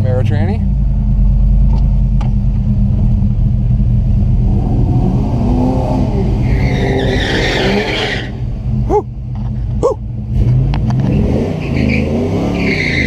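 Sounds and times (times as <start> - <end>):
engine revving up: 4.1 - 9.1, 9.8 - 13.0.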